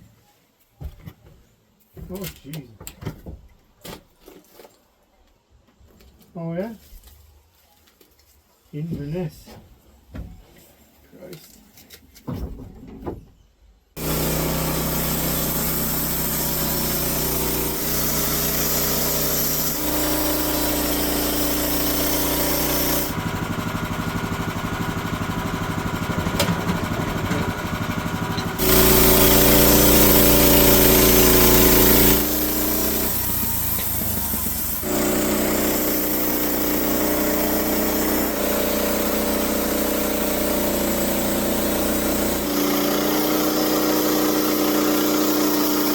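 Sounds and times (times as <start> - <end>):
gasoline saw engine running: 14.0 - 45.9.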